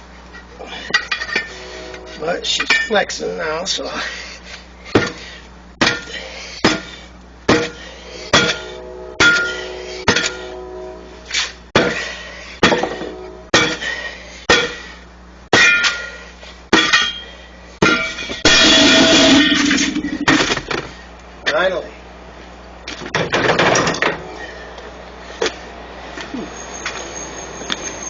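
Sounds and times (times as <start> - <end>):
tire bead scraping: 0.4 - 2.6, 7.6 - 14.1, 18.0 - 21.0
hammer ringing on steel tools: 7.6 - 10.9.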